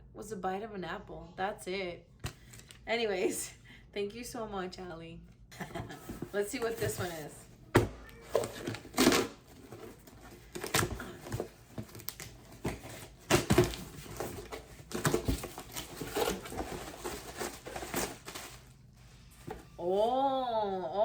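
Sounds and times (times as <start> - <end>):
packaging rustling and tearing: 8.2 - 19.7.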